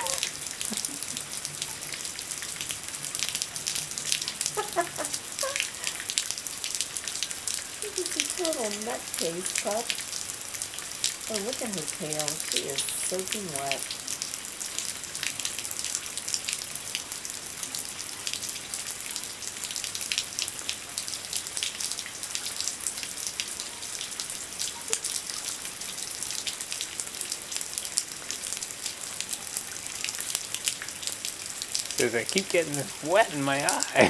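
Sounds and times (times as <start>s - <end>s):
rain patter: 0.0s - 34.0s
water dripping off roof edge: 0.0s - 34.0s.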